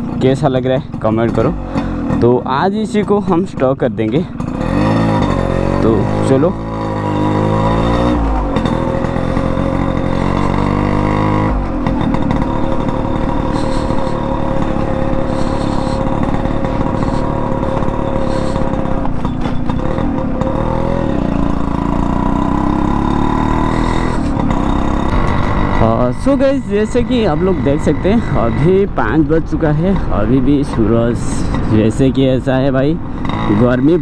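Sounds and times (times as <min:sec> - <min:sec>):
two-stroke motorbike engine: 0:00.0 - 0:34.0.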